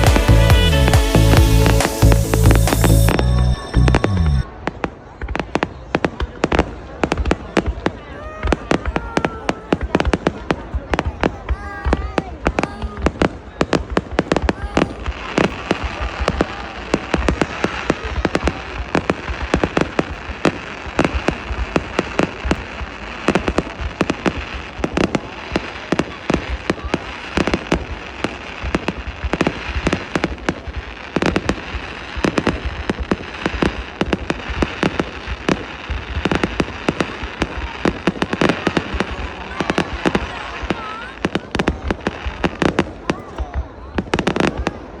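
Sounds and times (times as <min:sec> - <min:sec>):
fireworks bangs: 0:00.0 - 0:45.0
fireworks crackling: 0:00.0 - 0:45.0.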